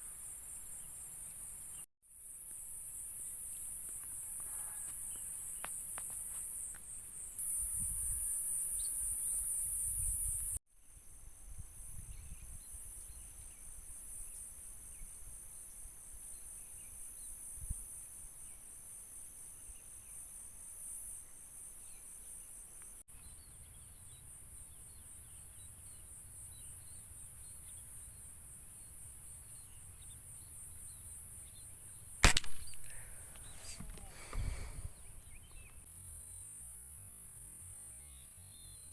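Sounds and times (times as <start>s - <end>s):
crickets and insects chirping: 0.0s - 38.9s
small birds chirping: 21.8s - 36.4s
air rifle shot: 32.2s - 34.6s.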